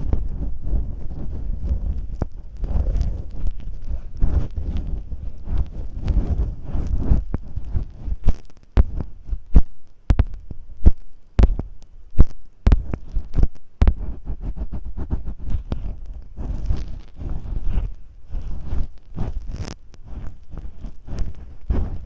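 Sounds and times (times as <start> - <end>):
masking tape thumps and crackles: 0.0 - 22.0
scratchy rustling: 0.0 - 22.0.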